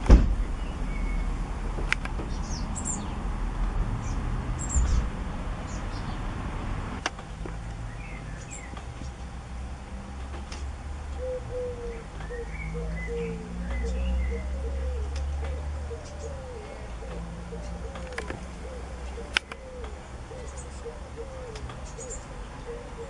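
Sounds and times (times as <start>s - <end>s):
small birds chirping: 0.4s - 1.4s, 2.1s - 3.3s, 4.0s - 6.3s, 7.6s - 9.4s, 11.1s - 23.0s
faint sharp clicks: 19.3s - 20.0s.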